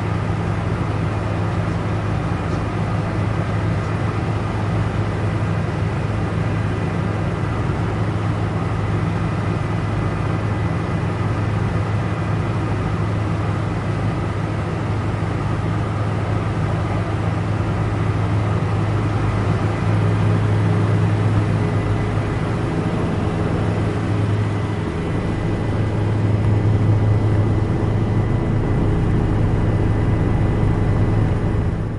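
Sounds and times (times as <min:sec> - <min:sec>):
helicopter drone: 0:00.0 - 0:31.9
high whine: 0:18.9 - 0:31.9.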